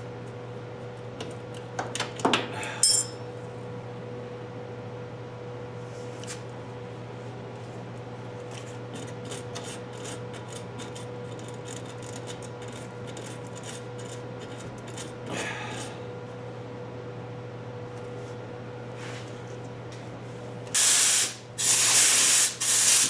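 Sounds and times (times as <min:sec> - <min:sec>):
electrical hum: 0:00.0 - 0:23.0
hand tools clicking and scraping: 0:08.6 - 0:15.9.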